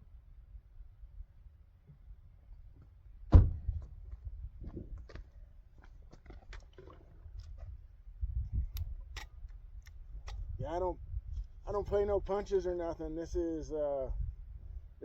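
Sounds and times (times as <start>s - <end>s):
heavy thump: 3.3s - 3.8s.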